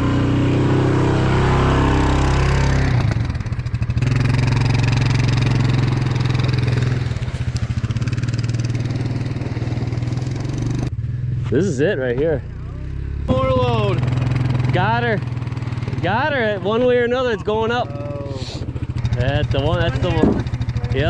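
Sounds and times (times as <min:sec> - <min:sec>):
machine engine running: 0:13.3 - 0:21.0.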